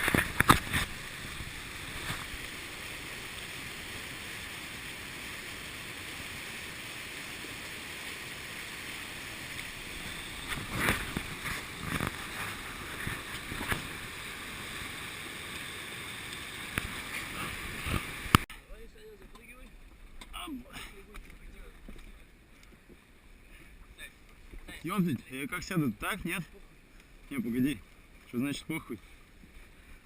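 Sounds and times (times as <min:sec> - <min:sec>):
waterfall rushing: 0:00.0 - 0:18.5.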